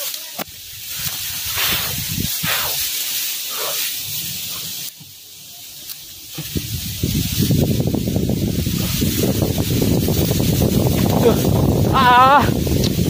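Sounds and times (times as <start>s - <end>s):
wind rushing through foliage: 0.0s - 13.0s
wind buffeting microphone: 0.4s - 3.0s, 6.2s - 13.0s.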